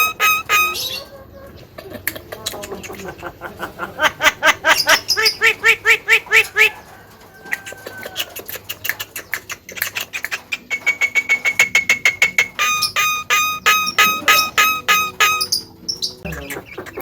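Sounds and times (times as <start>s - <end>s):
bird clicking notes: 0.0s - 0.8s, 8.2s - 17.0s
bird thin whistles: 0.0s - 1.1s, 10.6s - 15.7s
bird harsh nasal calls: 0.0s - 1.2s, 4.0s - 6.8s, 8.2s - 17.0s.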